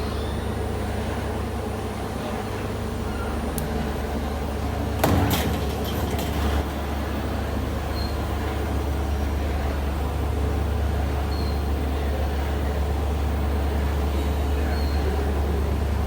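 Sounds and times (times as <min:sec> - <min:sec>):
factory machinery humming: 0:00.5 - 0:10.7
loud clattering impacts: 0:04.6 - 0:07.6.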